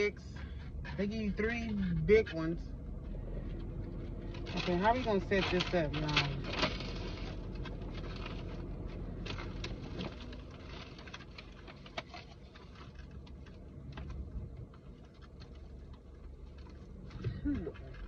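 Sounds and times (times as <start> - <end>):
low steady hum: 0.0 - 18.0
wrappers and bags rustling: 3.9 - 18.0.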